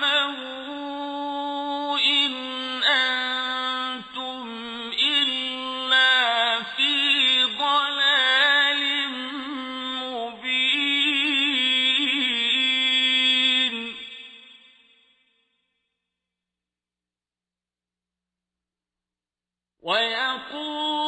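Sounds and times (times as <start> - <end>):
man chanting melodically: 0.0 - 14.3, 19.9 - 21.0.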